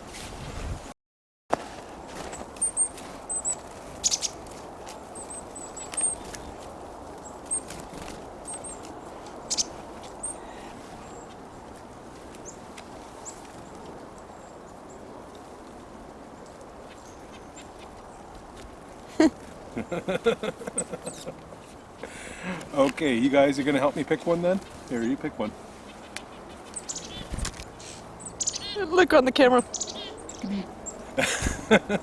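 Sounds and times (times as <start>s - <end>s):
birds chirping: 2.0s - 32.0s
outdoor hiss: 19.8s - 24.2s.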